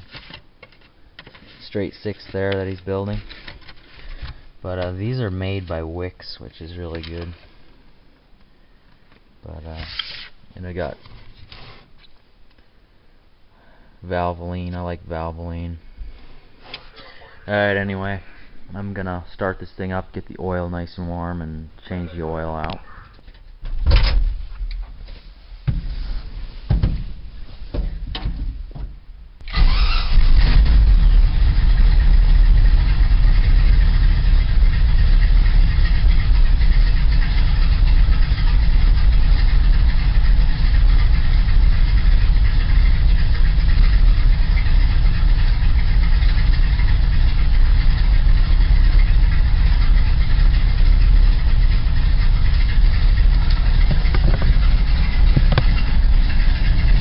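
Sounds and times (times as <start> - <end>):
truck engine starting and idling: 29.4 - 57.0
knocks and clicks: 53.4 - 56.0.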